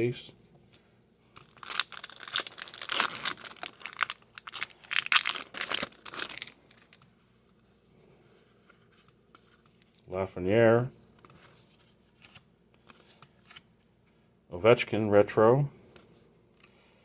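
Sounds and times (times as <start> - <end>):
wrapper tearing and crinkling: 1.4 - 7.0.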